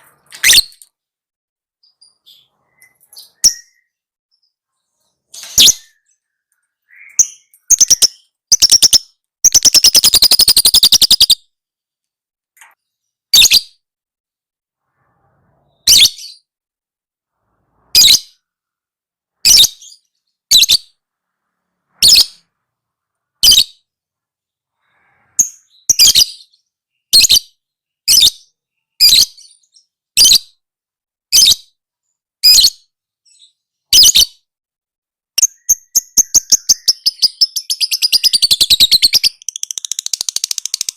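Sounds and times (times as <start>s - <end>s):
lovebird shrill chirps: 0.3s - 0.8s, 6.9s - 11.4s, 35.4s - 40.9s
lovebird rattling chatter: 37.6s - 40.9s.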